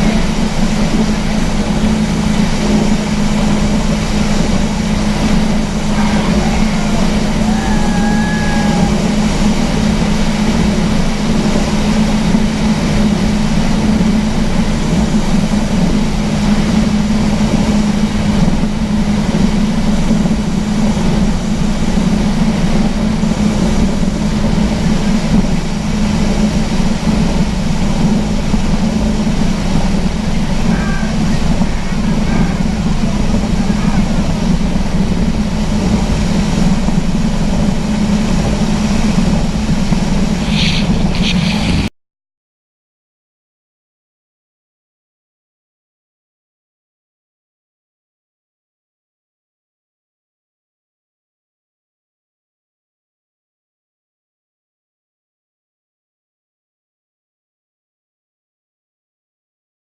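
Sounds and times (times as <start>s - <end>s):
speedboat engine drone: 0.0s - 41.9s.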